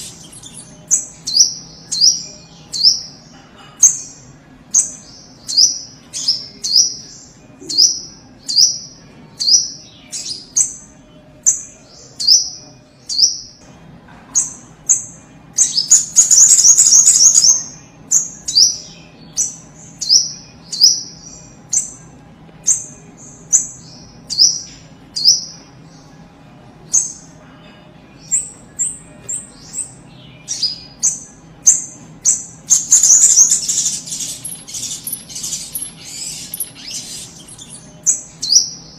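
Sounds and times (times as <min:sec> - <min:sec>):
faint low hum: 0:00.0 - 0:38.9
bird calling high chip notes: 0:30.4 - 0:38.9.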